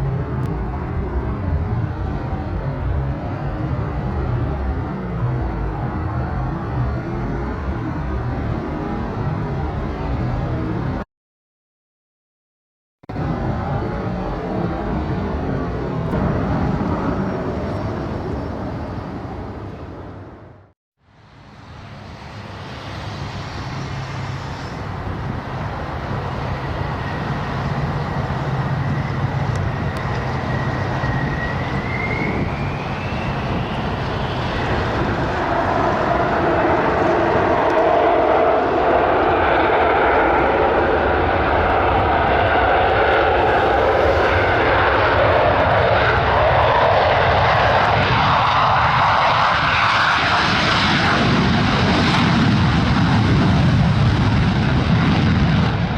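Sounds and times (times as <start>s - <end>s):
aircraft engine noise: 0.0s - 11.0s, 13.1s - 55.9s
thin rising whine: 22.3s - 54.6s.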